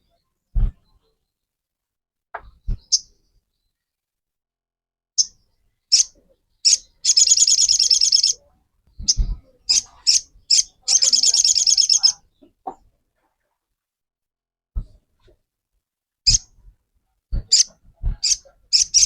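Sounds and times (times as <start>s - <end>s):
bird chirping and trilling: 5.9s - 8.4s, 9.0s - 12.2s, 16.3s - 16.5s, 17.5s - 19.0s.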